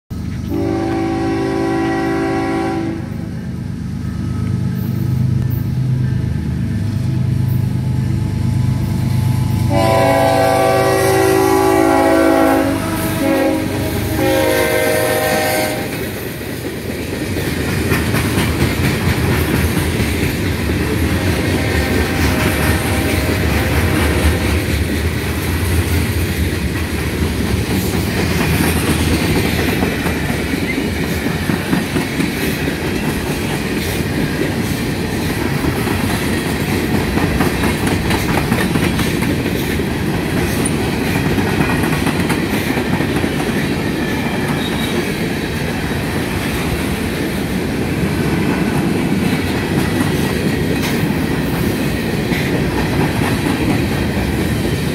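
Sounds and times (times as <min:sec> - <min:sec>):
locomotive engines rumbling: 0:00.1 - 0:54.9
train air horn blasts: 0:00.5 - 0:03.5, 0:09.3 - 0:16.1, 0:21.1 - 0:24.7
freight cars clattering on rails: 0:15.9 - 0:47.0.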